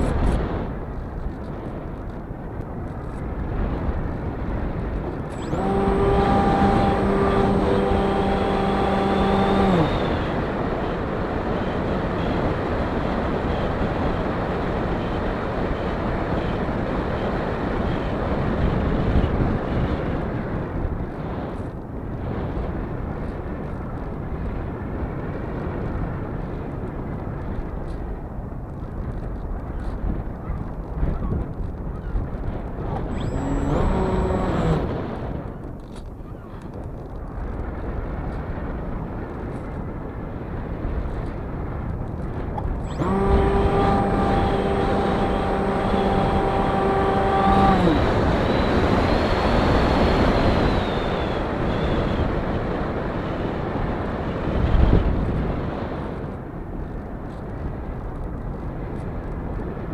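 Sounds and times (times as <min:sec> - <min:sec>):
wind noise on microphone: 0:00.0 - 0:59.9
pitched hum: 0:03.0 - 0:14.0, 0:32.9 - 0:35.6, 0:42.2 - 0:52.7.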